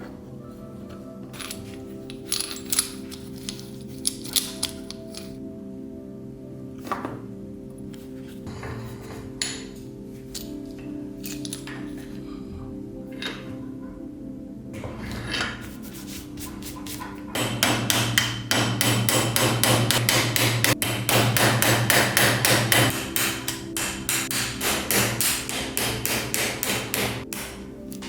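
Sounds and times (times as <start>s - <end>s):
metal hammer striking: 17.3s - 28.0s.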